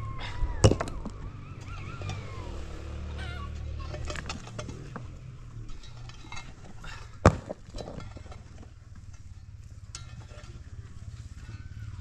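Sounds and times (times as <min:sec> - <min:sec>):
low steady rumble: 0:00.0 - 0:12.0
small clinks: 0:03.8 - 0:11.9.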